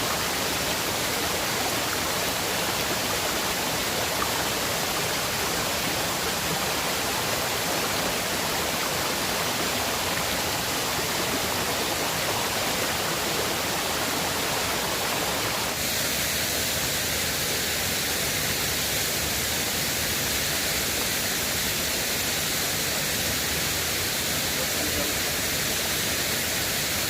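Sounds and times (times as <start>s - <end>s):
river water rushing: 0.0s - 27.0s.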